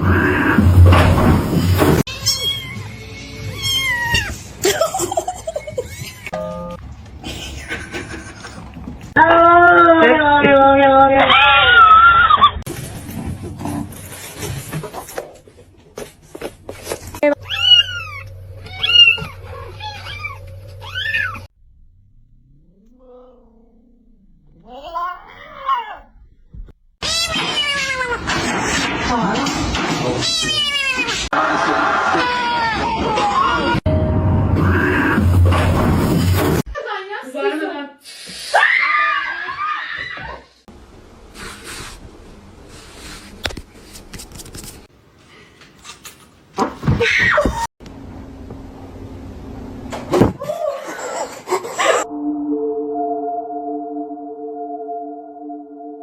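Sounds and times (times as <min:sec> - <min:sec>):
cat yowling: 0:02.1 - 0:04.4, 0:11.1 - 0:12.6, 0:17.4 - 0:21.5, 0:27.0 - 0:28.3, 0:30.2 - 0:31.3
cats meowing: 0:02.1 - 0:04.5, 0:17.4 - 0:21.5, 0:27.0 - 0:28.7, 0:30.1 - 0:31.3.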